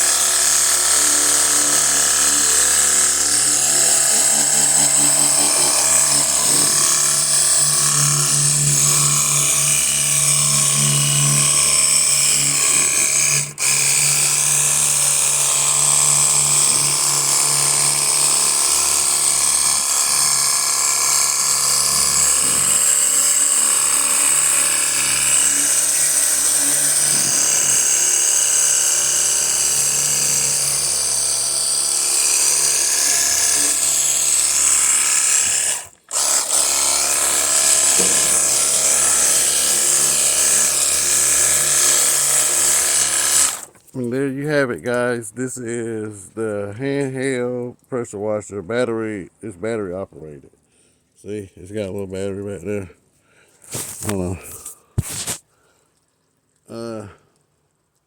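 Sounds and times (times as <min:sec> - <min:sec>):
pressure washer motor hum: 0:00.0 - 0:43.9.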